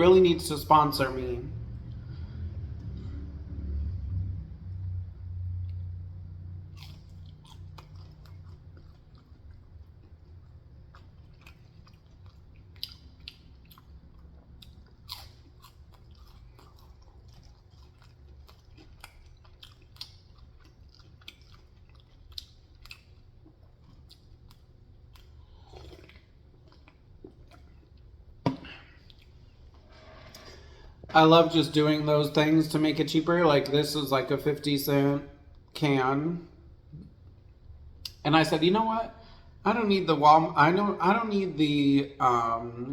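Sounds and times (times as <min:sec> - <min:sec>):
person chewing food: 0:05.6 - 0:31.0
food crunch: 0:06.8 - 0:28.1.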